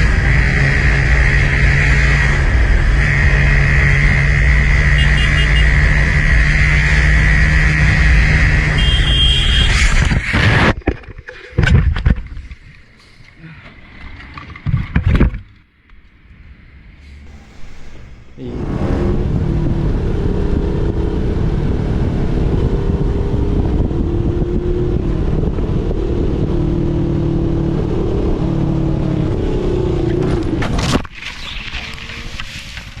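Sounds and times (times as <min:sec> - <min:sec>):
motorcycle engine running hard: 0:00.0 - 0:10.7
road and wind noise: 0:00.0 - 0:33.0
short loud burst: 0:17.3 - 0:19.2.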